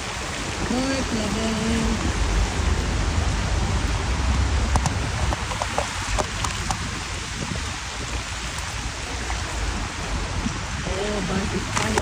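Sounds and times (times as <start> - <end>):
rain hiss: 0.0 - 12.0
low rumble: 1.1 - 12.0
sharp raindrop ticks: 3.8 - 6.9.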